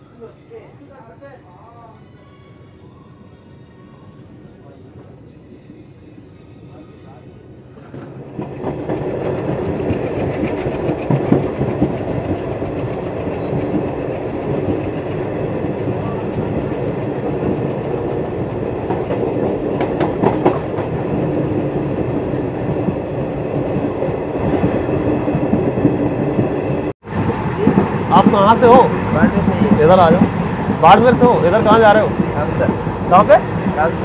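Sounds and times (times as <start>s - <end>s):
train coach rumble: 4.2s - 34.0s
wheels clacking over rails: 7.8s - 14.8s.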